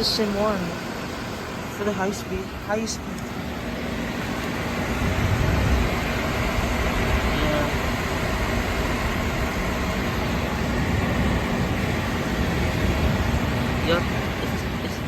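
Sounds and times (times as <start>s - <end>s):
portable air conditioner running: 0.0s - 15.0s
wind rumble on microphone: 4.8s - 15.0s.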